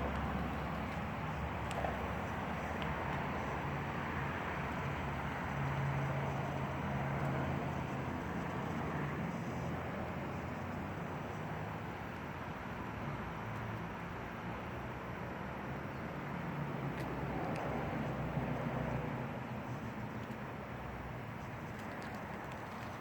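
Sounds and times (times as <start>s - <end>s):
vehicle engine hum: 0.0s - 23.0s.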